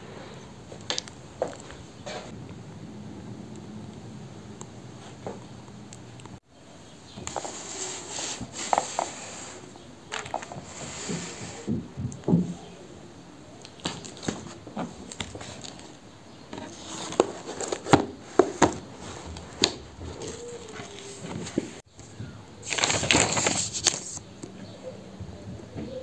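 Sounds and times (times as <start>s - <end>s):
objects being handled: 0.3s - 2.3s, 7.1s - 12.8s, 13.6s - 21.9s.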